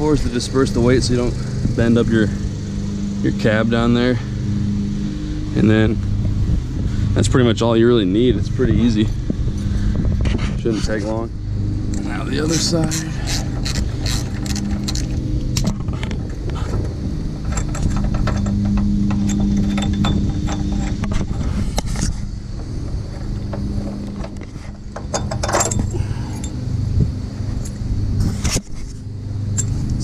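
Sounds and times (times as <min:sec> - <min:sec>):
low mechanical hum: 0:00.0 - 0:30.0
metallic clicks and rattles: 0:12.9 - 0:16.1, 0:17.4 - 0:21.9.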